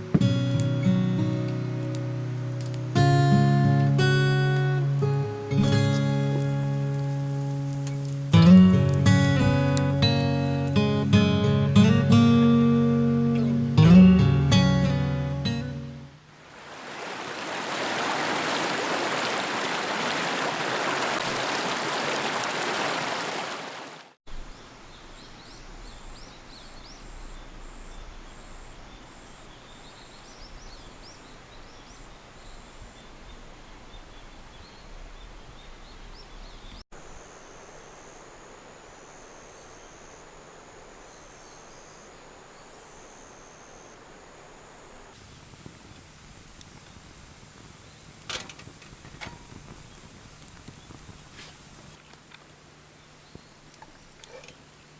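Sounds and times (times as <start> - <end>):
steady rushing hiss: 0.0 - 13.6, 24.3 - 54.9
faint hiss: 16.2 - 54.9
small birds chirping: 24.3 - 54.9.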